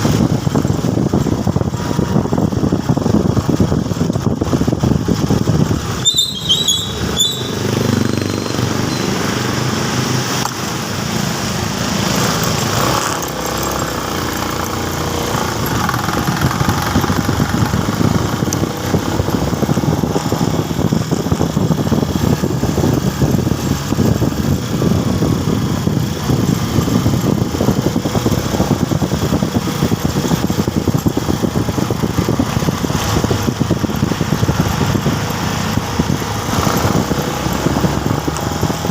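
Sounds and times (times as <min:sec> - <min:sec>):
motorcycle engine running: 0:00.0 - 0:38.9
road and wind noise: 0:00.0 - 0:38.9
high chirps: 0:06.0 - 0:09.2.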